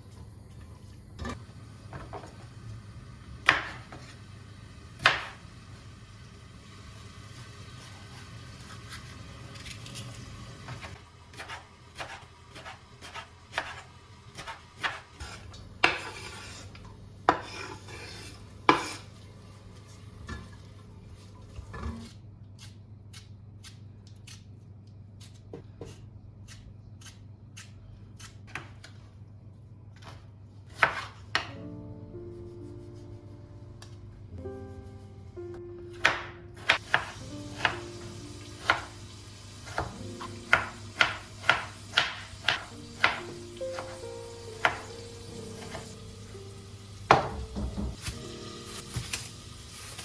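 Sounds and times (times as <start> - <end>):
low steady hum: 0.0 - 50.0
soft music: 31.4 - 50.0.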